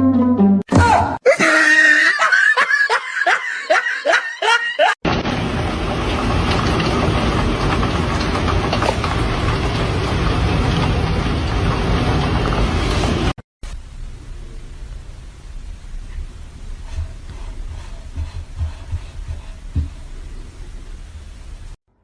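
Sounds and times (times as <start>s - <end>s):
person laughing in bursts: 1.2s - 5.0s.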